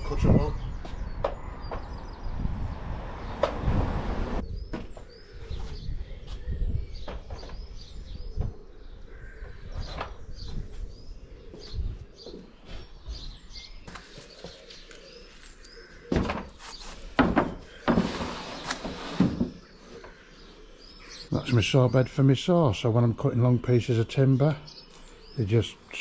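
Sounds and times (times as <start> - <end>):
small birds chirping: 0.0 - 3.7, 4.4 - 26.0
timber knocks and thumps: 16.1 - 16.6, 17.2 - 19.6.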